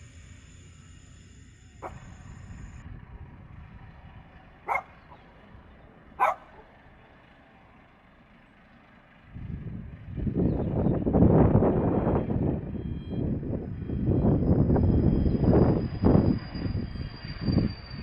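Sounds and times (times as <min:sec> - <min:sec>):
jet engines: 0:00.0 - 0:08.4, 0:09.3 - 0:18.0
low steady rumble: 0:00.0 - 0:17.9
dog barks: 0:01.8 - 0:02.1, 0:04.6 - 0:05.3, 0:06.2 - 0:06.7.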